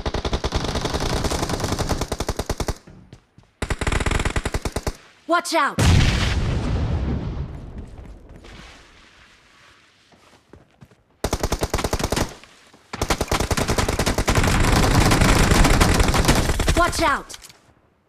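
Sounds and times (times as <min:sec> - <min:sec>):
video game automatic gunfire: 0:00.0 - 0:02.8, 0:03.6 - 0:05.0, 0:11.2 - 0:12.4, 0:13.0 - 0:17.1.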